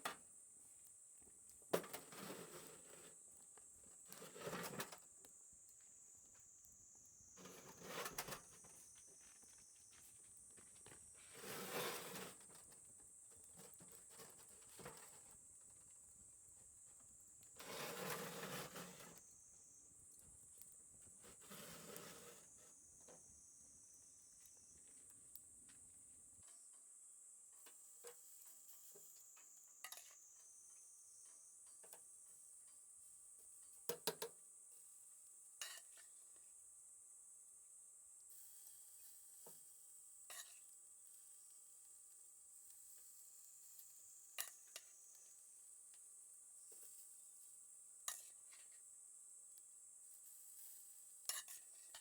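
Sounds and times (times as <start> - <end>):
rustling scrapes: 1.8 - 3.2, 4.0 - 5.0, 7.4 - 12.8, 17.6 - 19.2, 21.2 - 22.8.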